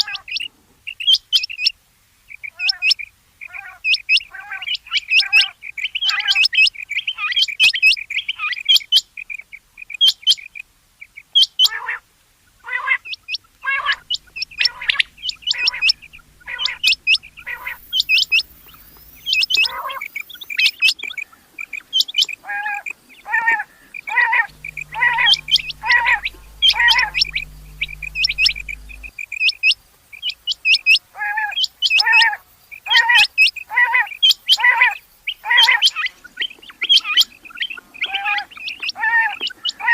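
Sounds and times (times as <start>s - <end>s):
quail calling: 12.7s - 29.1s.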